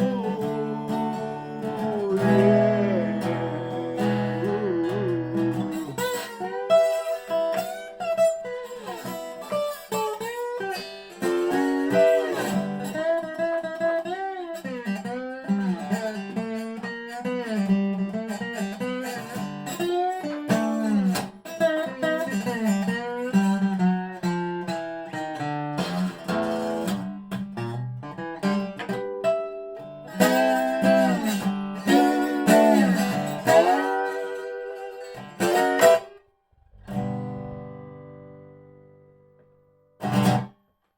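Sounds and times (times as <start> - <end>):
slide guitar notes: 0.0 - 9.4, 30.2 - 39.4.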